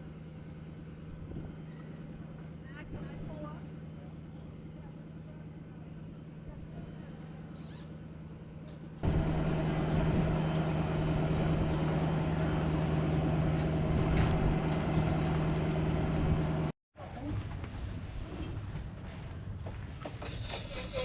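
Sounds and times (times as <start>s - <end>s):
engine running steadily: 0.0s - 16.8s
loud close engine: 9.0s - 16.8s.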